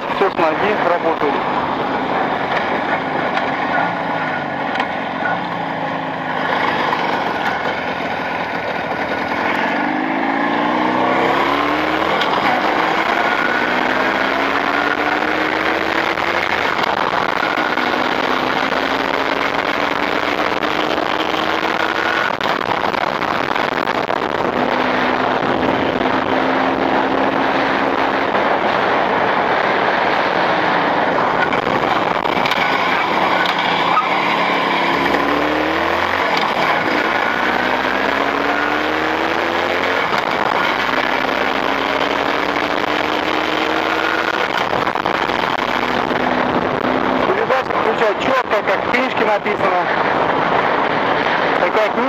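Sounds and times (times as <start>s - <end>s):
motorcycle engine accelerating: 0.0s - 49.1s
gear changes: 0.0s - 52.0s
wind and road noise: 0.0s - 52.0s.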